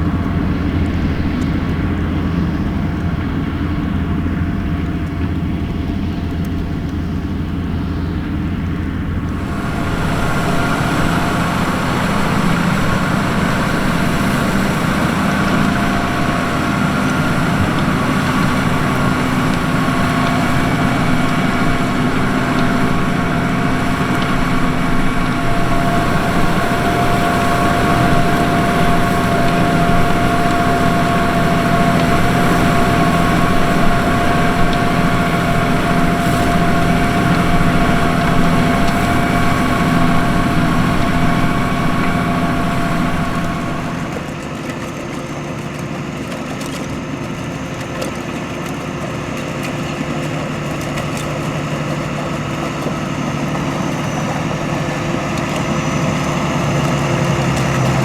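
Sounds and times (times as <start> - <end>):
tractor engine running: 0.0 - 58.0
high whine: 6.2 - 44.3.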